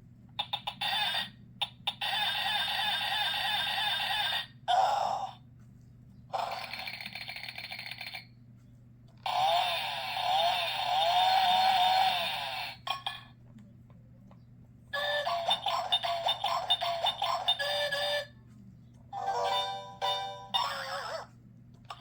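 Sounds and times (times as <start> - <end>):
jingly electronic tune: 19.2 - 20.8.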